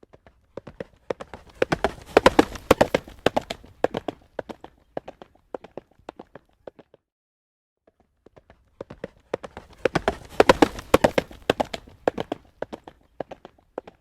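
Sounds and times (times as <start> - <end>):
horse hooves clip-clopping on road: 0.0 - 7.0, 8.1 - 14.0.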